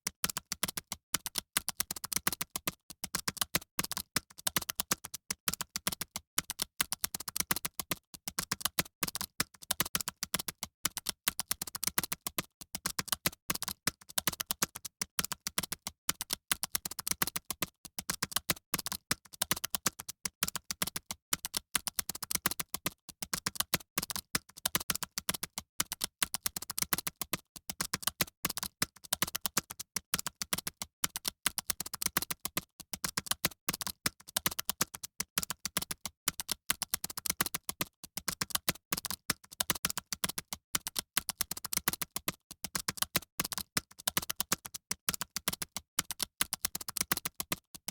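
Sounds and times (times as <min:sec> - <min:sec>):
fast typing on keyboards: 0:00.0 - 0:47.9.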